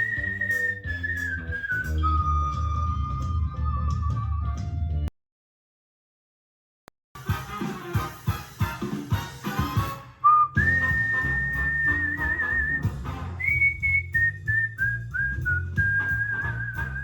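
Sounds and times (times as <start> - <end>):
whistled tune: 0.0 - 4.8, 10.2 - 17.0
bass backing: 0.0 - 5.1, 7.2 - 17.0
music with a beat: 7.2 - 13.2.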